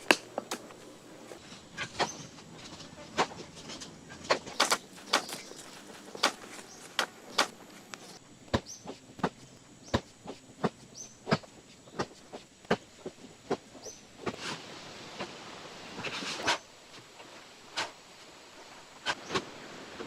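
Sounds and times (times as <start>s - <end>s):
hand tool striking: 4.4s - 8.2s.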